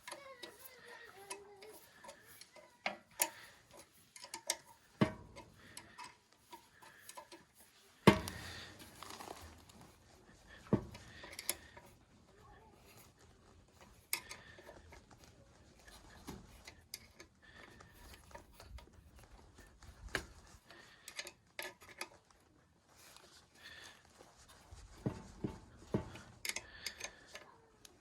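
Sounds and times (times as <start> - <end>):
metal tools clicking and knocking: 0.0 - 9.4, 10.6 - 11.9, 13.7 - 19.3, 20.1 - 22.4, 24.5 - 27.5.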